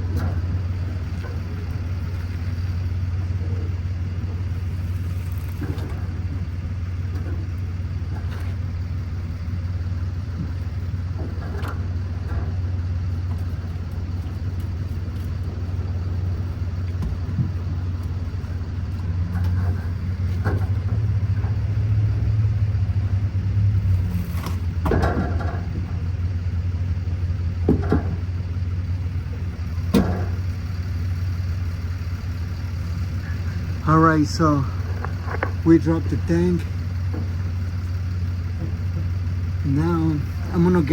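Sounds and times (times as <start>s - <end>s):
low mechanical hum: 0.0s - 40.9s
metal knocks and clanks: 24.8s - 26.0s, 27.6s - 28.3s.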